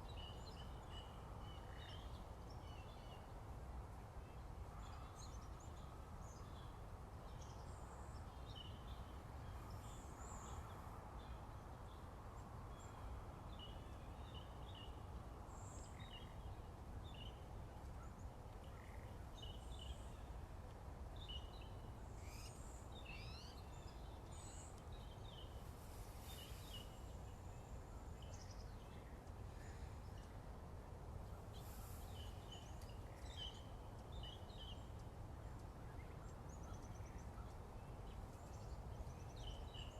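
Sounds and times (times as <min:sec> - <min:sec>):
steady low background noise: 0:00.0 - 0:39.9
small birds chirping: 0:31.2 - 0:39.9.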